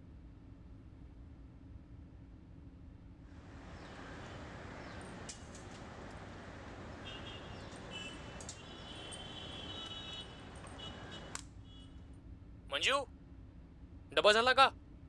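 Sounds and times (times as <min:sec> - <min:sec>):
small birds chirping: 0:03.4 - 0:11.4
steady background hiss: 0:03.4 - 0:11.4
light clicks: 0:03.5 - 0:11.5.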